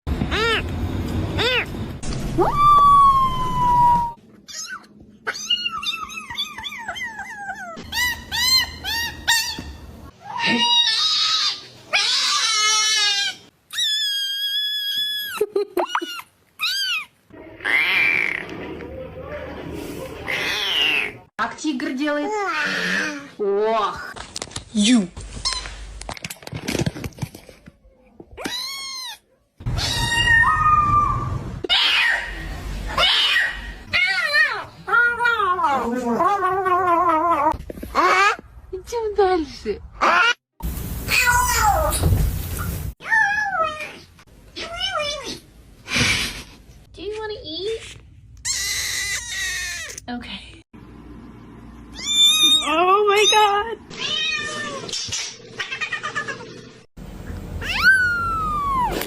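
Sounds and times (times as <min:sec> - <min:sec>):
cats meowing and chirping: 0:03.8 - 0:18.5, 0:28.4 - 0:32.1, 0:51.9 - 0:56.4, 0:57.6 - 0:59.0
cat meowing: 0:57.6 - 0:59.0.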